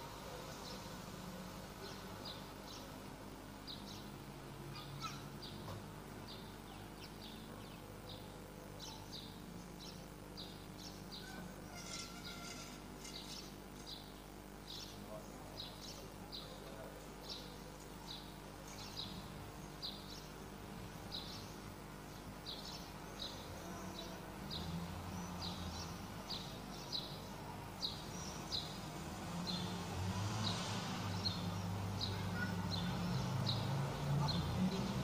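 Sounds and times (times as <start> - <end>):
steady low hum: 0.0 - 29.9
small bird chirping: 3.7 - 5.7, 6.3 - 20.4.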